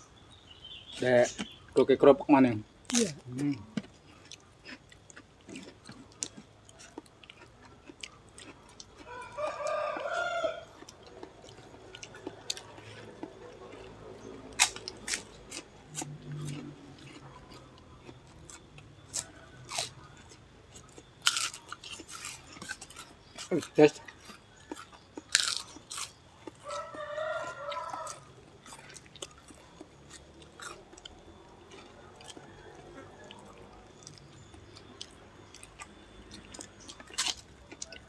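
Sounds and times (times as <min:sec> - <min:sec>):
chewing and crunching crackers: 0:00.1 - 0:38.0
rooster crowing: 0:09.0 - 0:13.9, 0:26.4 - 0:29.0, 0:31.0 - 0:34.2.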